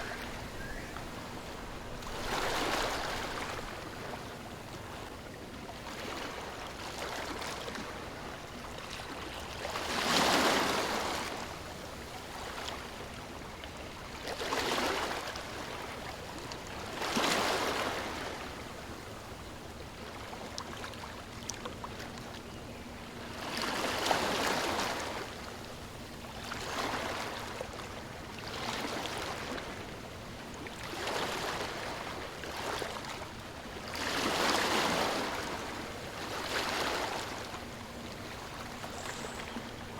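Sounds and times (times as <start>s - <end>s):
sea waves washing in: 0.0s - 4.7s.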